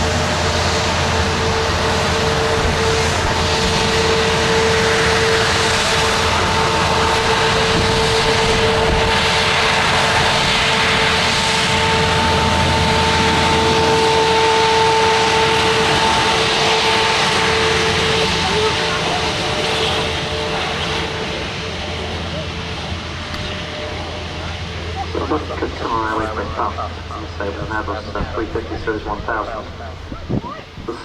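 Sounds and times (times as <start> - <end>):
jet airliner landing approach: 0.0 - 31.0
jet engine whining tones: 0.0 - 31.0.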